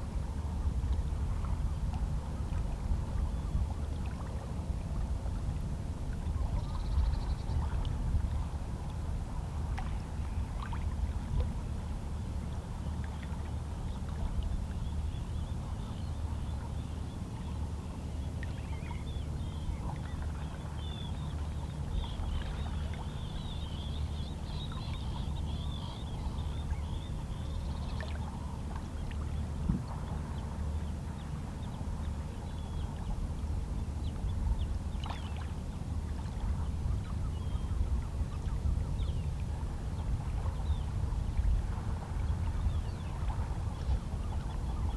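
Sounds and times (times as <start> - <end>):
low rumble of water: 0.0 - 44.9
faint seabird calls: 36.2 - 44.9.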